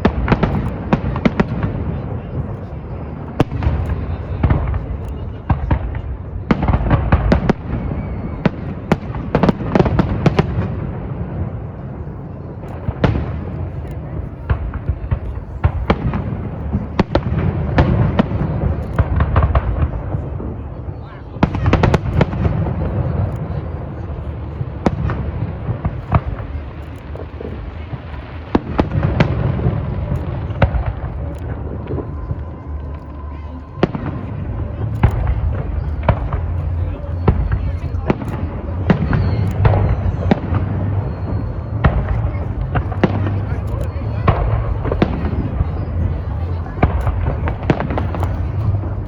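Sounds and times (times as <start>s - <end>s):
distant fireworks rumble: 0.0s - 49.0s
fireworks cracking and banging: 0.0s - 49.0s
firework shells bursting: 33.8s - 49.0s.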